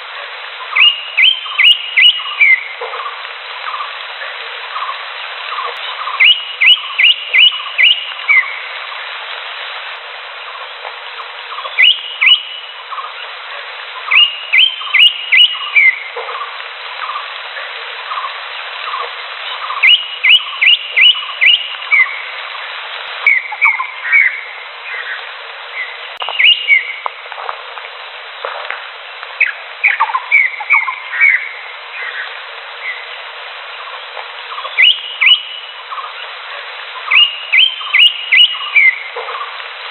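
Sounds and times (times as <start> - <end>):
steady background hiss: 0.0 - 39.9
bird singing whistled notes: 0.7 - 2.7, 5.6 - 8.7, 11.5 - 13.1, 14.1 - 16.1, 19.5 - 22.2, 23.2 - 25.2, 25.8 - 27.0, 29.4 - 33.1, 34.5 - 36.1, 37.0 - 39.4.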